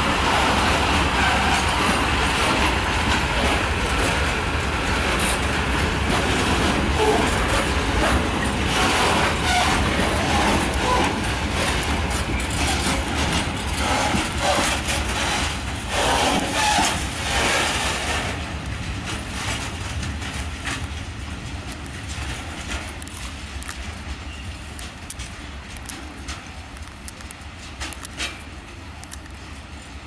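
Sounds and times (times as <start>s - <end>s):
train wheels rumbling on rail: 0.0s - 30.0s
wheel squeaks: 8.0s - 18.2s.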